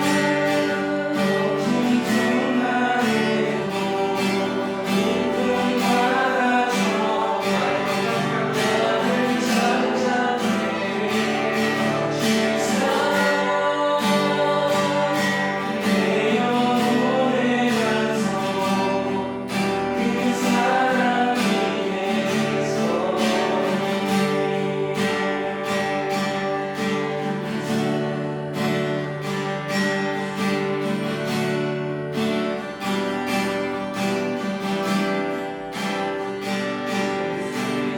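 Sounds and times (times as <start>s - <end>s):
group singing worship song: 0.0s - 27.1s, 37.0s - 37.9s
strummed guitar: 0.0s - 37.9s.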